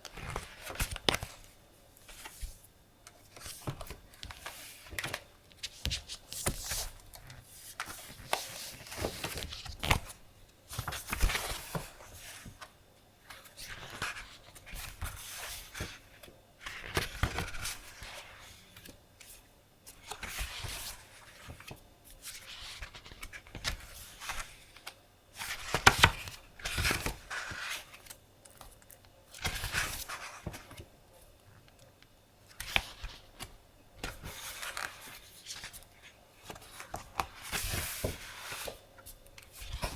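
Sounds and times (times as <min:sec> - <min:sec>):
paper rustling: 0:32.5 - 0:39.9.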